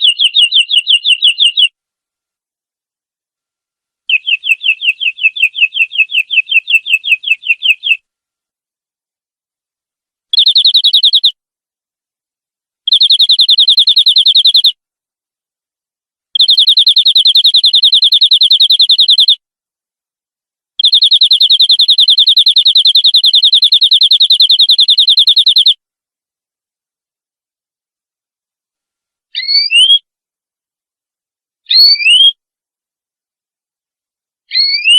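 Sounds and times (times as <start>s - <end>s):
canary singing trills: 0.0s - 1.8s, 4.1s - 8.0s, 10.3s - 11.4s, 12.9s - 14.8s, 16.4s - 19.4s, 20.8s - 25.8s, 29.4s - 30.1s, 31.7s - 32.4s, 34.5s - 34.9s.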